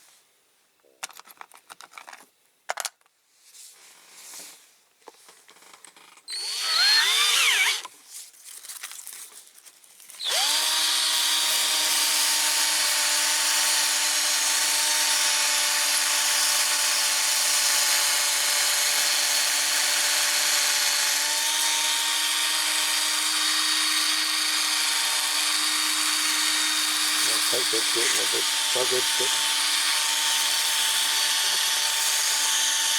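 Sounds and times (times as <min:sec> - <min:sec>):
cordless drill spinning: 0:06.3 - 0:07.9, 0:10.2 - 0:32.9
sandpaper rubbing metal: 0:27.2 - 0:29.3.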